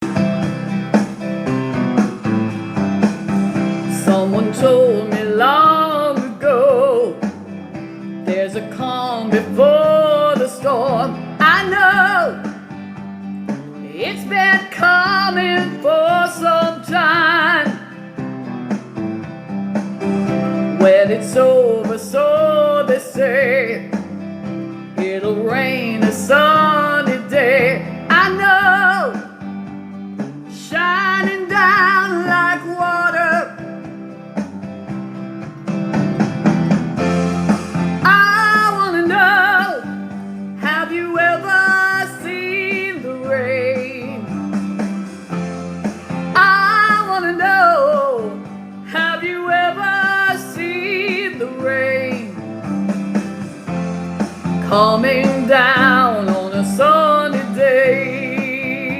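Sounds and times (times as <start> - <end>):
guitar chords: 0.0 - 58.9
person singing with vibrato: 3.8 - 7.3, 8.2 - 12.8, 13.8 - 18.0, 20.8 - 24.0, 25.0 - 29.5, 37.8 - 44.4, 46.2 - 52.4, 54.5 - 58.9.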